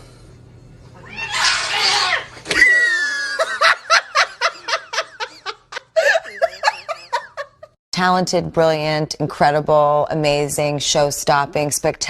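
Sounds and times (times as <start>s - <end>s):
person laughing hard: 2.5s - 7.7s.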